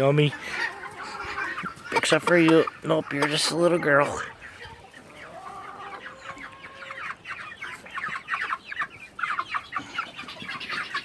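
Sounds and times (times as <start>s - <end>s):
young chickens clucking and chirping: 0.0s - 11.0s.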